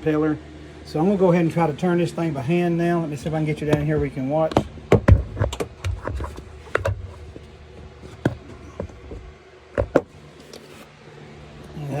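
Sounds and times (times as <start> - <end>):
handling rustle: 3.0 - 11.0
camera knocks and clicks: 8.2 - 10.1.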